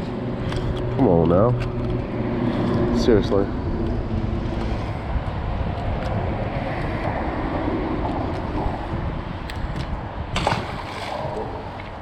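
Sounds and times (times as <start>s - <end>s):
boat engine low rumble: 0.0s - 12.0s
wind rushing over microphone: 0.0s - 12.0s.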